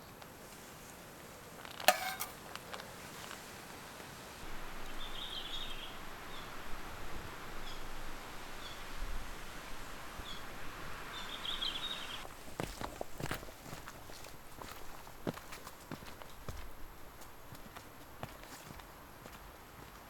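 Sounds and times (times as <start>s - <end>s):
small birds chirping: 11.1s - 12.2s.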